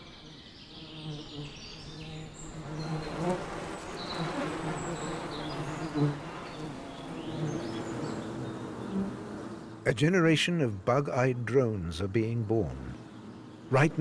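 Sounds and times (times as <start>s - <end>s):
bees buzzing in hive: 0.0s - 9.8s.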